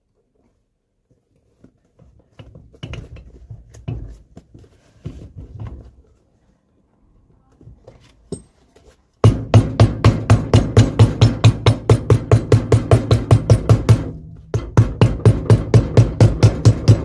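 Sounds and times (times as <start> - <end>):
knocks and scuffs on workbench: 2.4 - 6.0.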